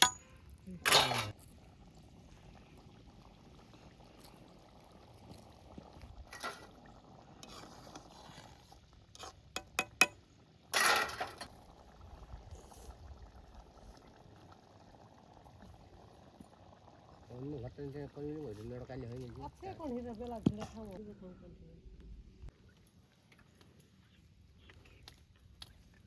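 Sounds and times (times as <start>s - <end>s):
scrape or rustle: 7.4s - 9.4s.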